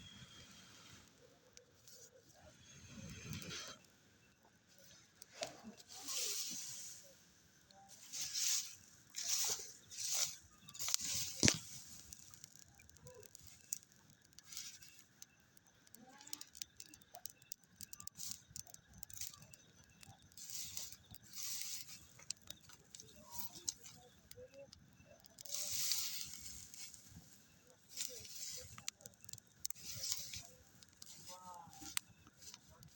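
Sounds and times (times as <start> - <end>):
small clicks and taps: 7.6 - 32.9
light rustling: 7.9 - 15.1, 25.3 - 32.9.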